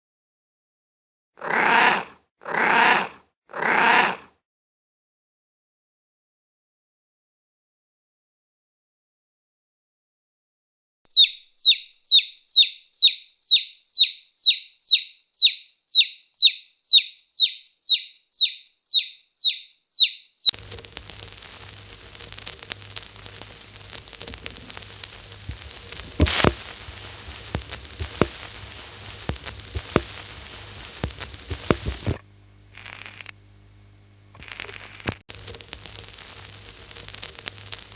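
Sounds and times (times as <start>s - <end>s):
bird calling high falling note: 11.1s - 20.6s
scattered clicks: 20.5s - 32.2s.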